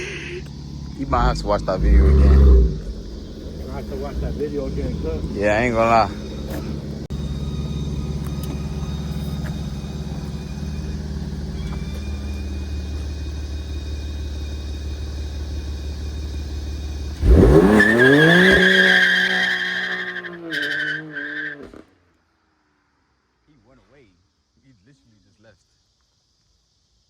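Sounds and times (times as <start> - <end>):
tyre squeal: 0.0 - 12.9, 17.2 - 21.8
car engine revving: 0.0 - 13.8, 17.0 - 21.8.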